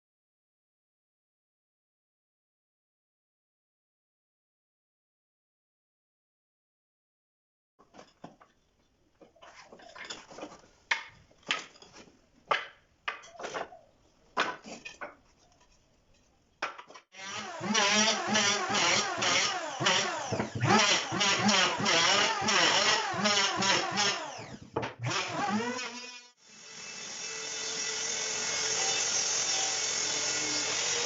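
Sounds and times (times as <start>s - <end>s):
wood scraping: 7.8s - 24.9s
wood pieces knocking together: 9.2s - 15.7s, 16.6s - 17.1s.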